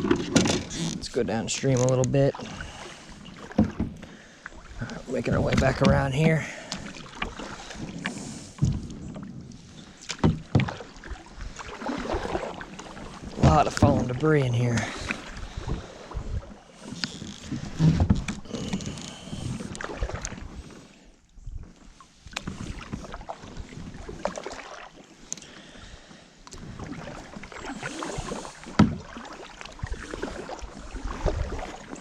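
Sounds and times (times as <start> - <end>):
paddle splashing water: 0.0 - 32.0
paddle knocking plastic hull: 3.3 - 4.1, 4.9 - 9.4, 10.0 - 15.8, 28.1 - 31.9.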